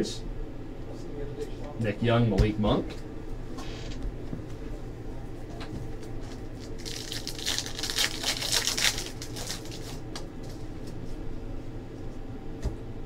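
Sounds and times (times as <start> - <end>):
foil wrapper crinkling: 6.1 - 10.9.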